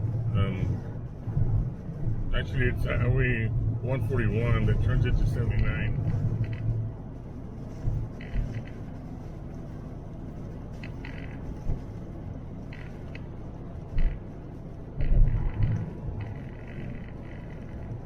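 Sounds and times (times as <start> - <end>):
engine and tyre rumble: 0.0 - 18.0.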